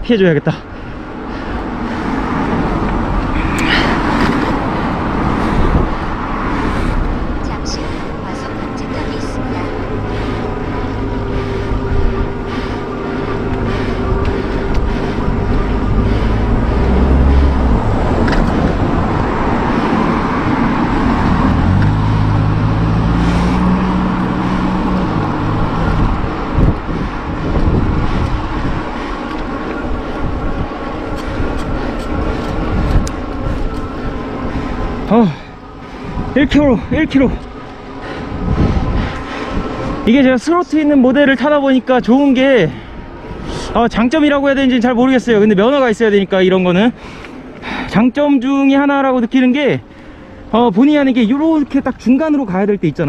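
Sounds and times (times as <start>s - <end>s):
road and wind noise: 0.0s - 53.0s
car overtaking: 0.9s - 53.0s.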